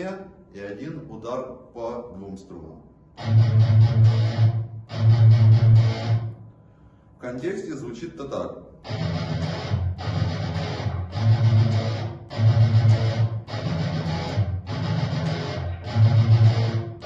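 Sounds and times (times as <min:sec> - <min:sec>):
guitar playing low riff: 0:03.2 - 0:06.4, 0:08.8 - 0:17.0.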